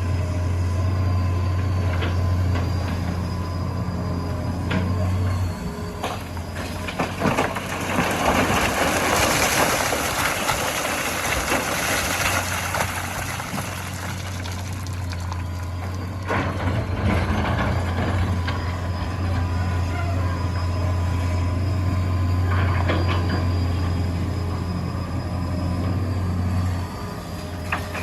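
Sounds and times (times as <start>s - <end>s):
diesel engines running: 0.0s - 28.0s
sand and stones loaded into truck: 6.0s - 17.3s.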